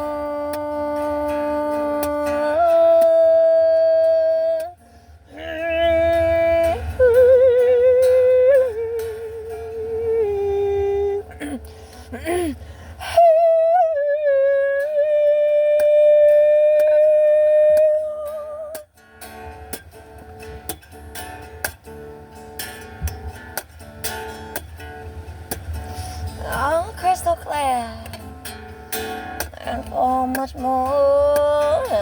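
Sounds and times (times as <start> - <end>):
person singing wordless melody: 0.0 - 18.9, 26.0 - 28.4, 29.2 - 32.0
acoustic guitar plucked: 0.0 - 32.0.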